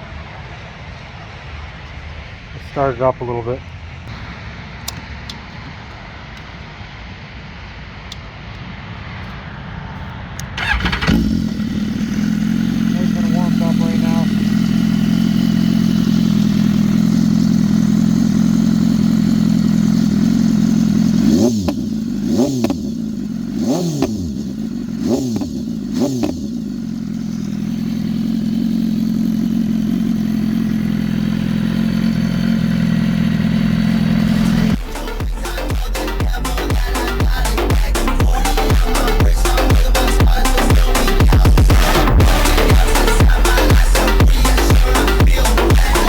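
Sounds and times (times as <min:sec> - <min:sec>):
motorcycle engine idling and revving: 0:10.0 - 0:46.0.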